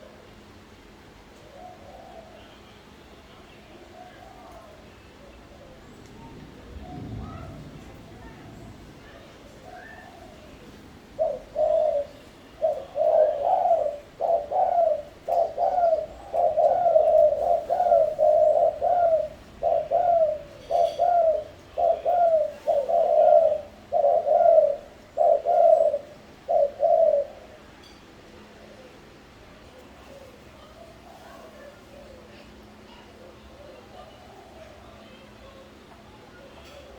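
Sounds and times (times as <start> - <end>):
dove cooing: 1.2 - 2.6, 3.9 - 8.4, 9.2 - 27.6.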